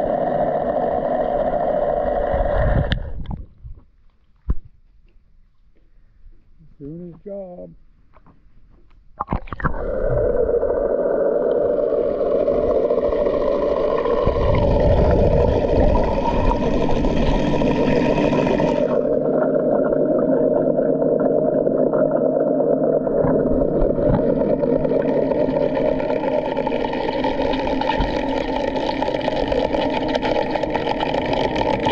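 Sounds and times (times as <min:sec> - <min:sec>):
pool cleaner motor and pump hum: 0:10.8 - 0:20.8.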